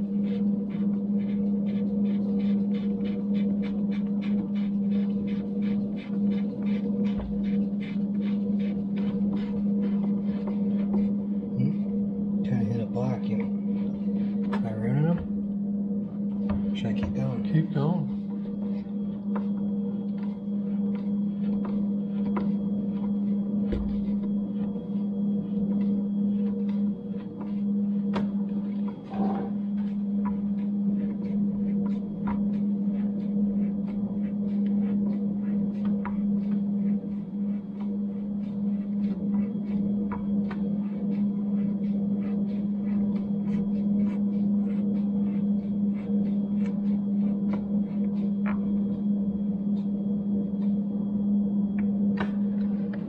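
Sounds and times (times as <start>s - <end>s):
steady low hum: 0.0s - 53.0s
soft low thump: 23.6s - 24.2s.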